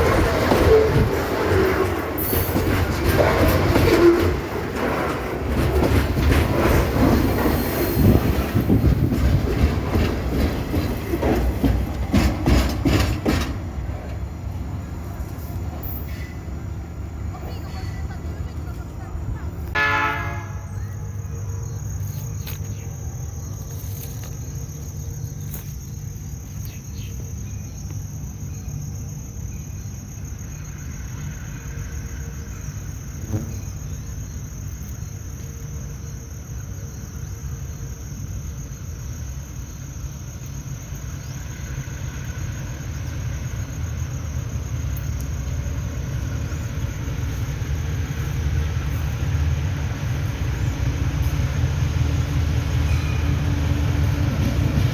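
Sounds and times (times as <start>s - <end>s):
train rumbling on rails: 0.0s - 54.9s.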